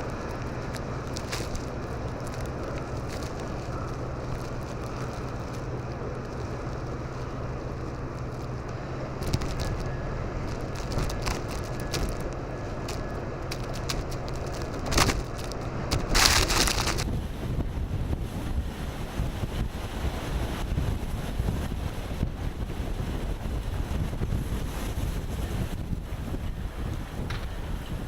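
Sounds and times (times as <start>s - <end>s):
crackling ticks: 0.0s - 17.1s
low hum: 0.0s - 18.8s
wind buffeting microphone: 0.0s - 28.0s.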